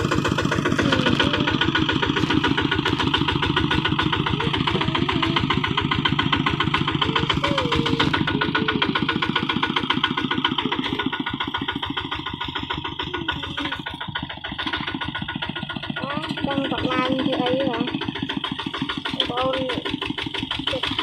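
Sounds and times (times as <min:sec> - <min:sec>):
diesel tractor engine chugging: 0:00.0 - 0:21.0.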